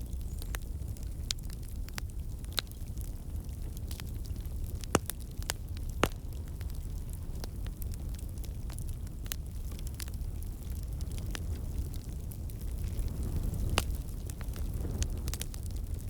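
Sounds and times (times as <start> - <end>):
fire crackling and popping: 0.0 - 16.0
wood fire rumbling: 0.0 - 16.0.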